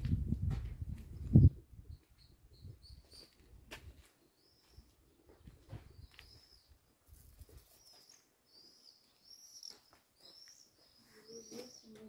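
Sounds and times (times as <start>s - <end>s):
small bird chirping: 1.3s - 3.5s, 4.3s - 12.0s.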